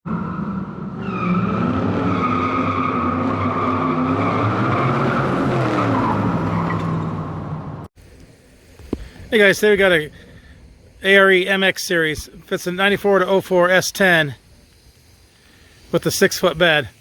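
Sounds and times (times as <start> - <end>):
tire squeal: 0.0 - 7.9
car engine running hard: 0.1 - 7.9.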